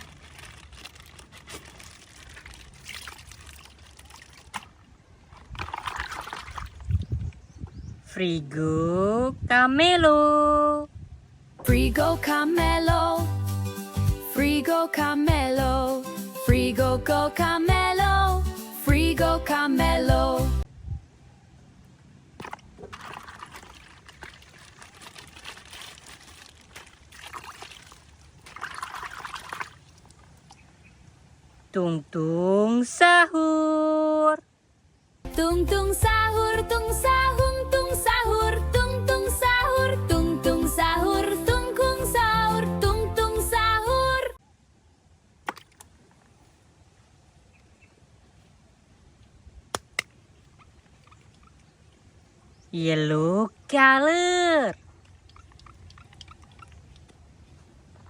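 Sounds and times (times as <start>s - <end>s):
plastic packaging crinkling: 0.0s - 4.6s.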